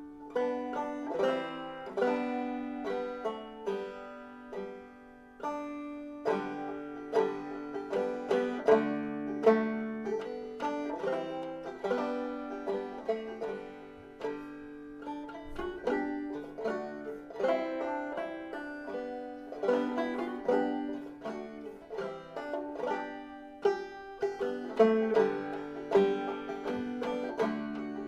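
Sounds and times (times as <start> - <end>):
banjo picking quick notes: 0.0 - 28.0.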